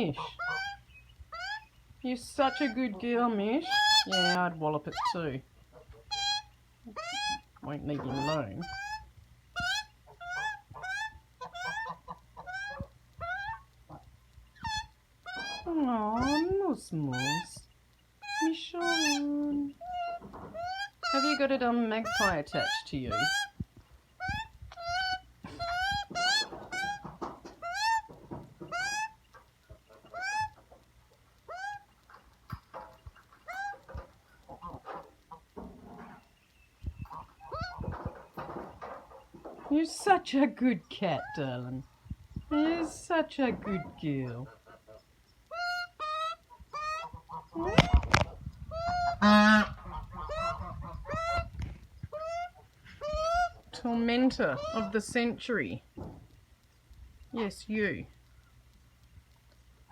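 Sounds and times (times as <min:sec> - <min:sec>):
magpie squawking: 0:00.0 - 0:01.7, 0:03.6 - 0:05.3, 0:06.0 - 0:13.6, 0:18.2 - 0:23.6, 0:24.2 - 0:27.0, 0:54.3 - 0:55.2.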